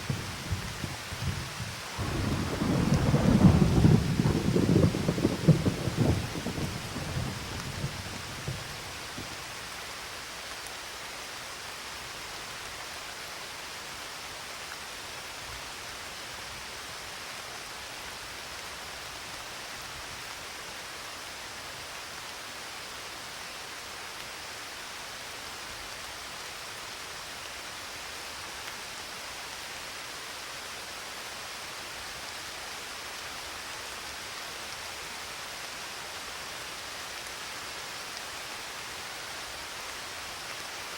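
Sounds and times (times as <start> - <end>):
thunder rumble: 0.0 - 9.4
steady rain: 0.0 - 40.9.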